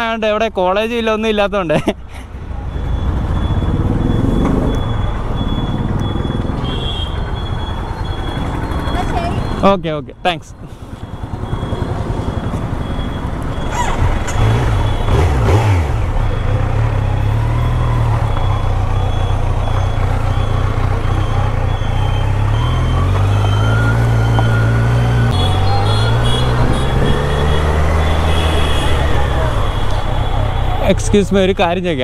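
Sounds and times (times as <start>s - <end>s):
motorcycle engine accelerating: 11.1s - 30.7s.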